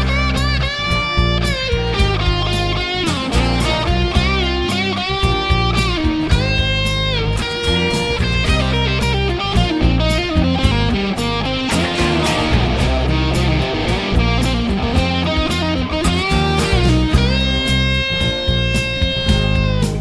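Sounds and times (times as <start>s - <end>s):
electric guitar playing: 0.0s - 20.0s.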